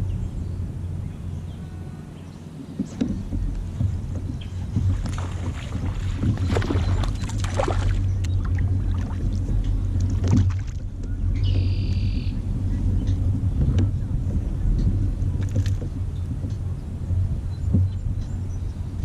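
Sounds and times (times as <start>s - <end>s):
wind on microphone: 0.0s - 19.0s
water splashing: 2.4s - 18.0s
knocks against kayak hull: 2.8s - 10.8s, 17.7s - 18.0s.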